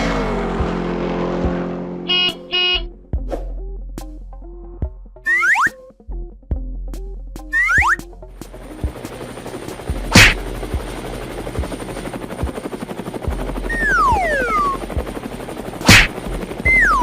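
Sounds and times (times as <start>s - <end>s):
falling whistle: 5.3s - 5.8s, 7.5s - 8.0s.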